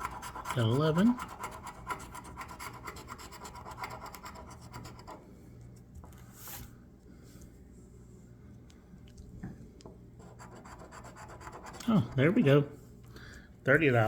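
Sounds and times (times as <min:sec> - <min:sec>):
lottery ticket being scratched: 0:00.0 - 0:05.2.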